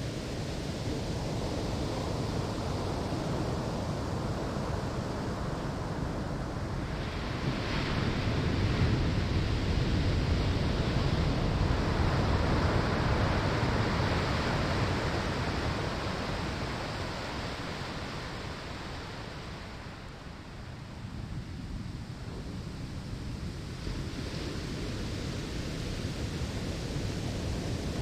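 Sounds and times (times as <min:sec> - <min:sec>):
ocean waves washing on shore: 0:00.0 - 0:28.0.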